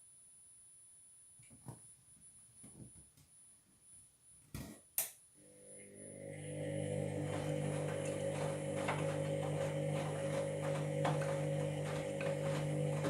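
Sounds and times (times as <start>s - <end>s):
washing machine motor humming: 5.4s - 13.0s.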